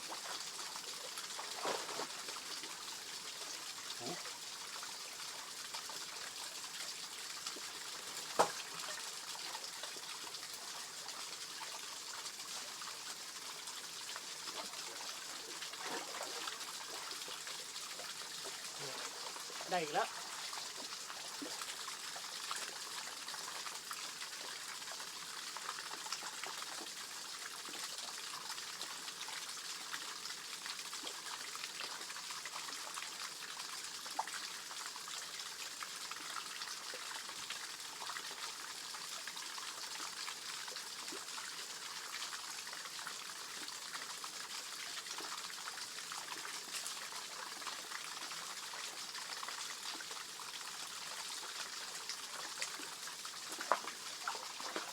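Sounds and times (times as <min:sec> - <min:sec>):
water running over small waterfall: 0:00.0 - 0:54.9.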